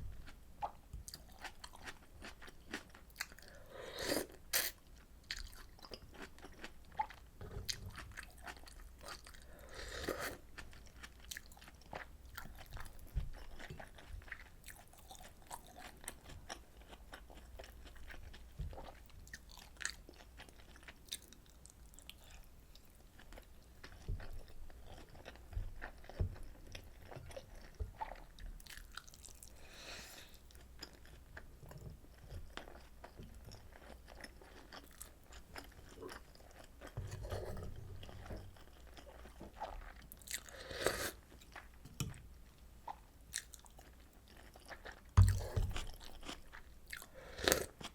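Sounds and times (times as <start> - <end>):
wet chewing and mouth smacks: 42.9 - 47.9.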